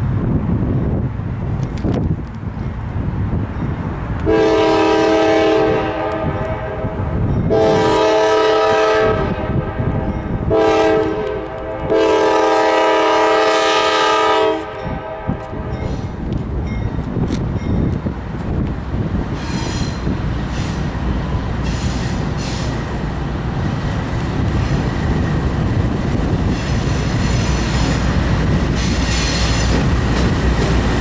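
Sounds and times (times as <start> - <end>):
train engines and wheels rumbling: 0.0 - 31.0
locomotive air horn blasts: 4.2 - 15.9.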